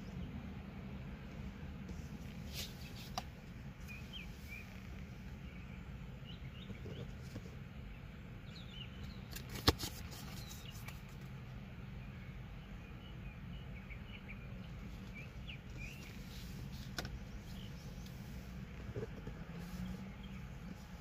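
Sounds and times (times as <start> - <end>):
small birds chirping: 1.9 - 21.0
steady low rumble: 11.3 - 21.0.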